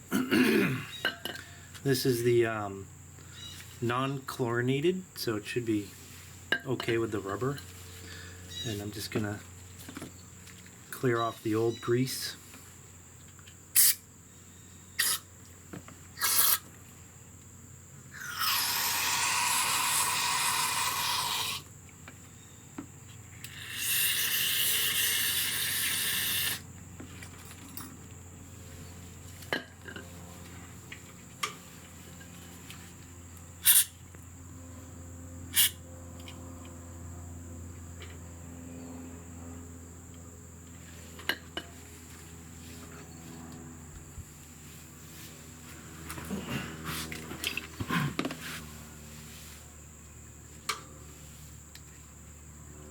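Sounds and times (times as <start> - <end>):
aerosol spray bursts: 13.8 - 14.0, 16.2 - 16.6, 23.6 - 26.6, 33.6 - 33.9.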